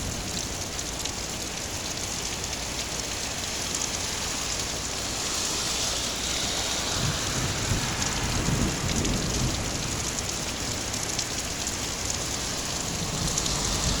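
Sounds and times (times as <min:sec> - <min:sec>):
heavy rain falling: 0:00.0 - 0:14.0
thunder rumble: 0:05.9 - 0:14.0.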